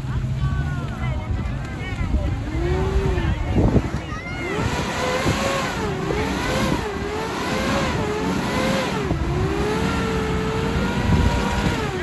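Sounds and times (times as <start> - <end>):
toy truck motor whining: 2.5 - 12.0.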